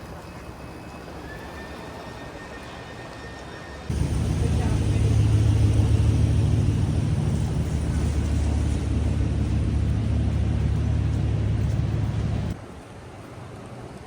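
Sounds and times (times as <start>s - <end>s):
vehicle rumble: 3.9s - 12.6s.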